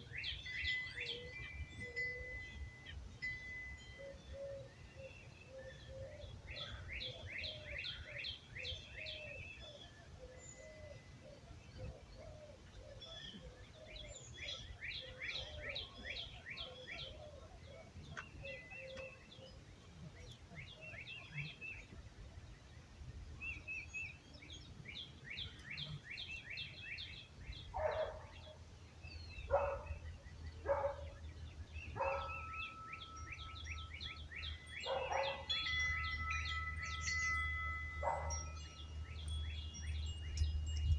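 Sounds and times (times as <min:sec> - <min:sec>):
wind chimes ringing: 0:00.0 - 0:04.9, 0:31.8 - 0:40.9
birds singing trilled phrases: 0:00.0 - 0:40.9.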